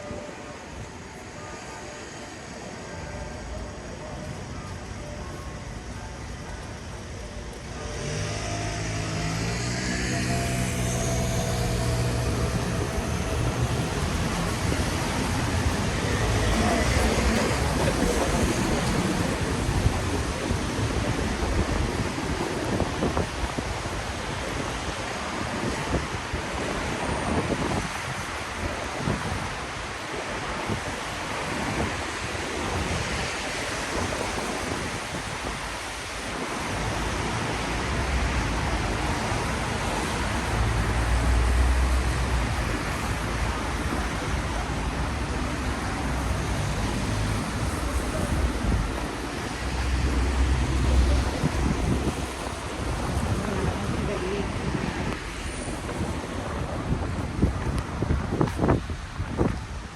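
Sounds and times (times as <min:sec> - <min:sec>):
rain: 0:00.0 - 0:59.9
traffic on a wet street: 0:00.0 - 0:59.9
low rumble: 0:06.2 - 0:22.2.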